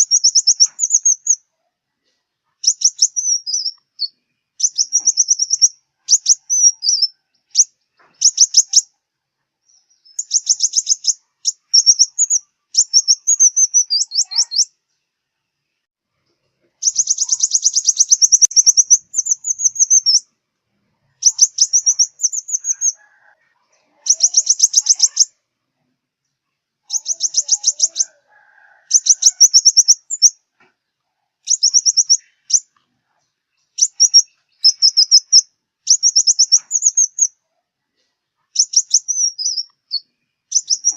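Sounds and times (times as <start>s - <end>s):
sunbird singing trilled phrases: 0.0s - 1.4s, 2.6s - 8.9s, 9.7s - 14.8s, 16.8s - 20.3s, 21.2s - 23.0s, 24.0s - 25.4s, 26.8s - 28.1s, 28.9s - 30.4s, 31.4s - 32.7s, 33.8s - 37.4s, 38.6s - 40.9s.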